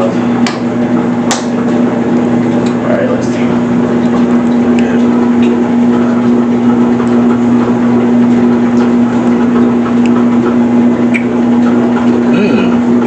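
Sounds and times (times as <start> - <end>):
electrical appliance humming: 0.0 - 13.0
person humming mm: 12.3 - 12.9.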